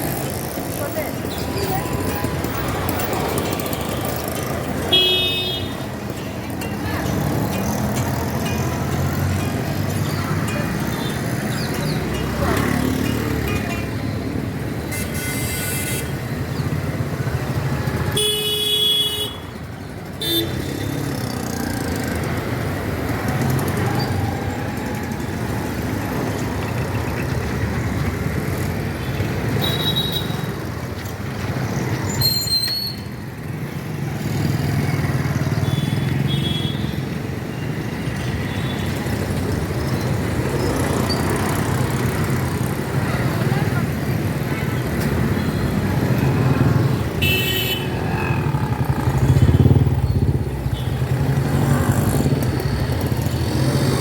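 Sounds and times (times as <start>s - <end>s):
street traffic: 0.0s - 54.0s
vehicle horns tooting: 4.8s - 5.9s, 14.9s - 16.3s, 18.1s - 19.5s, 35.6s - 37.0s, 47.1s - 48.2s.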